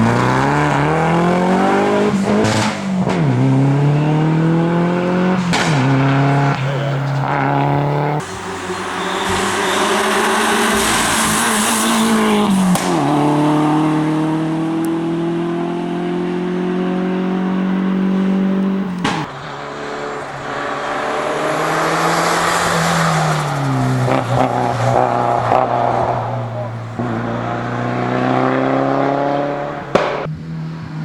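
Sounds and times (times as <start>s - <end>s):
gearshift crack: 0.0s - 15.3s, 18.6s - 20.6s, 22.5s - 30.3s
rally car engine accelerating: 0.0s - 31.0s.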